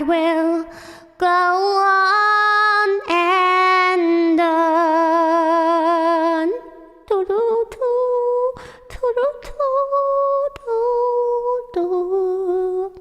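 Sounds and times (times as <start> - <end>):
woman singing with vibrato: 0.0 - 13.0
quick breaths: 0.7 - 1.2, 8.6 - 8.9.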